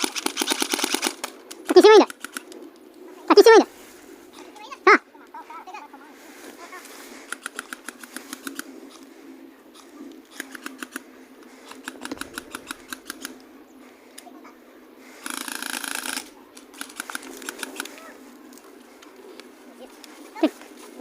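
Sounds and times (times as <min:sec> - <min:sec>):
airsoft guns firing bursts: 0:00.0 - 0:02.5, 0:07.1 - 0:08.7, 0:10.3 - 0:11.0, 0:11.6 - 0:13.4, 0:15.2 - 0:18.0.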